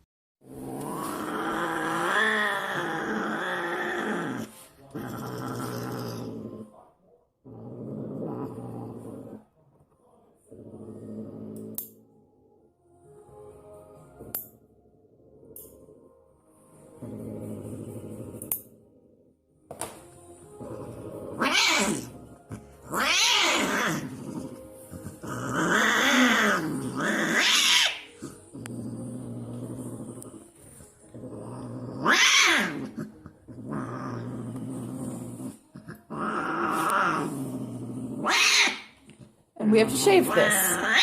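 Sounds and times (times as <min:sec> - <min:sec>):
cat growling: 0:00.5 - 0:09.6, 0:10.4 - 0:12.0, 0:20.5 - 0:41.0
cat yowling: 0:21.4 - 0:22.1, 0:22.9 - 0:24.0, 0:25.5 - 0:28.2, 0:32.0 - 0:32.9, 0:38.2 - 0:38.9, 0:40.4 - 0:41.0.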